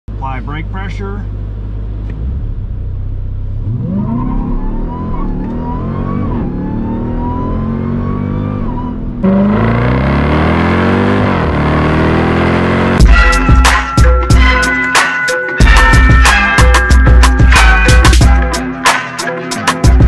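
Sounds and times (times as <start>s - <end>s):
car exhaust roaring: 0.1s - 13.6s
car engine accelerating: 0.6s - 13.0s.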